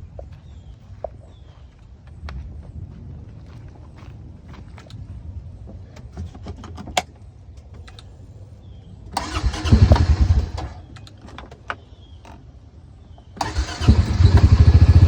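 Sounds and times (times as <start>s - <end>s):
engine cranking on starter: 9.2s - 10.9s, 13.4s - 15.0s.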